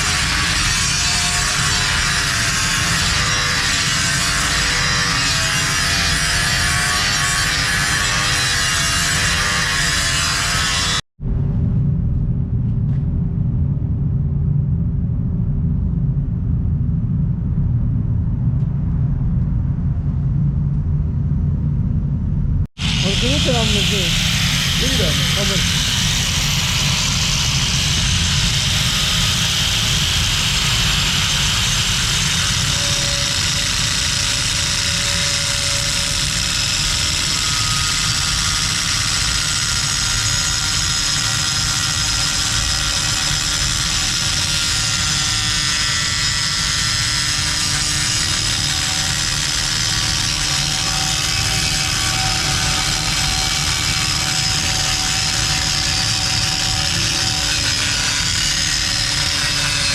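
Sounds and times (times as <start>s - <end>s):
loud mechanical roar: 0.0s - 8.2s, 22.8s - 59.9s.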